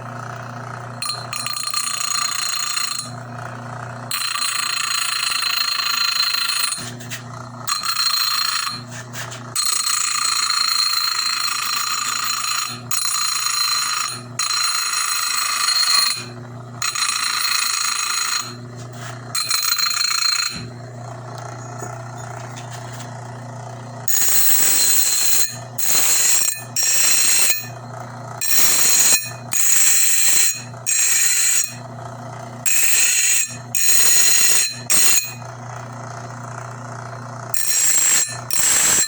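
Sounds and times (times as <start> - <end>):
fan motor humming: 0.0 - 1.5, 3.0 - 4.2, 6.8 - 10.4, 16.0 - 17.1, 17.9 - 39.0
high ringing grinding noise: 0.0 - 39.0.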